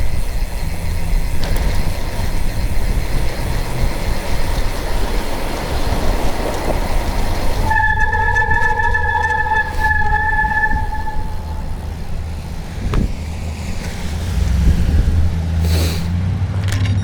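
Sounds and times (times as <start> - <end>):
rumbling vehicle noise: 0.0 - 17.0
horn blast: 4.7 - 15.7.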